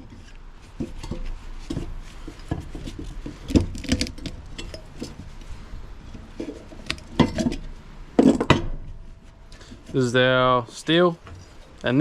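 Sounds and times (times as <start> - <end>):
metal parts knocking and scraping: 0.0 - 5.3, 6.0 - 9.0.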